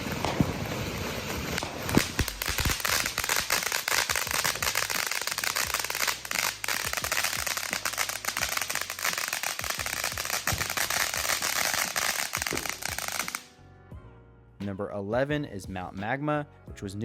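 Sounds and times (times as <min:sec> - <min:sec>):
firework crackling: 0:00.0 - 0:13.5
firework fountain hissing: 0:00.0 - 0:13.5
firework pops: 0:00.0 - 0:13.5.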